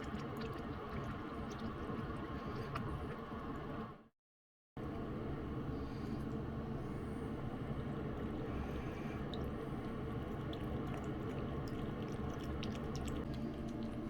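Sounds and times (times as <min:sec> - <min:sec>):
steady low hum: 0:04.8 - 0:14.0
cat chewing and licking: 0:09.7 - 0:14.0.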